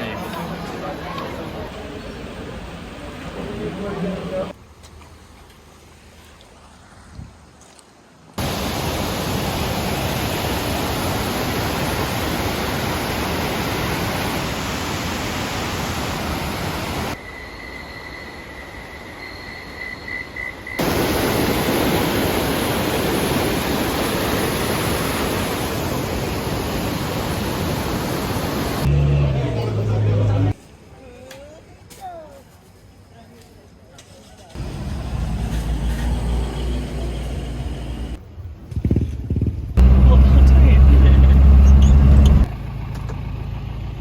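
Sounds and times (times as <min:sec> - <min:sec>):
rush of falling water: 0:08.4 - 0:17.2, 0:20.8 - 0:28.9.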